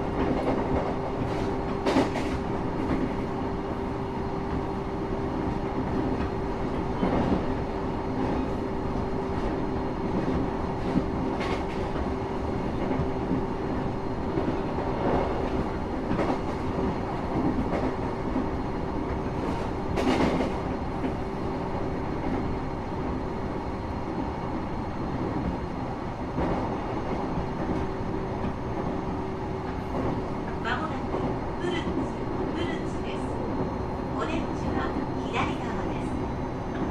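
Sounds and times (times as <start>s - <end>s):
train rumbling on track: 0.0s - 36.9s.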